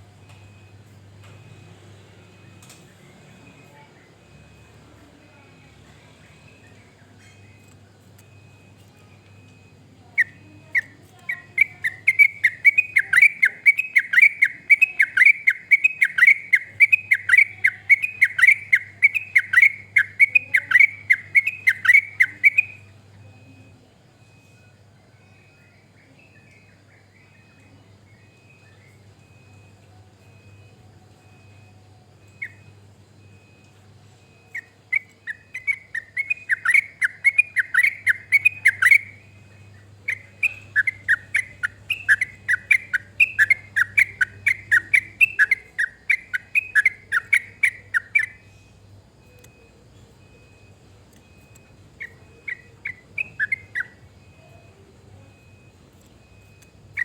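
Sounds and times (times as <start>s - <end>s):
bird singing bubbling notes: 9.4s - 22.8s, 34.2s - 48.4s, 52.0s - 54.6s.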